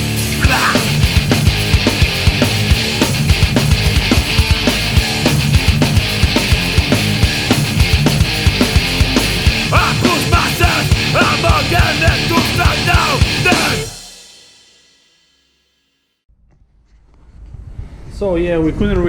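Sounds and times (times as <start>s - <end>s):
rock music with drum beat: 0.0s - 15.2s.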